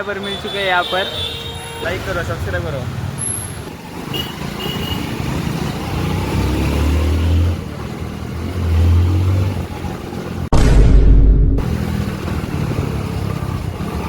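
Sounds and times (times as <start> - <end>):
road traffic noise: 0.0 - 10.5, 11.6 - 14.0
low engine drone: 10.5 - 12.3.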